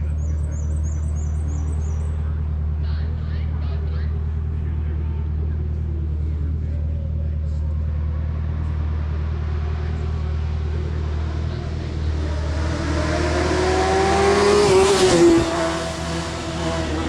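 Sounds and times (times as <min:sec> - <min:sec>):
race car accelerating past: 0:08.3 - 0:17.0.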